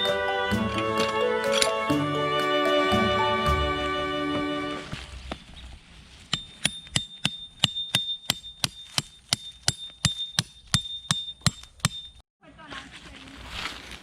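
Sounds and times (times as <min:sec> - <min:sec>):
hammering on metal: 0:06.3 - 0:12.2.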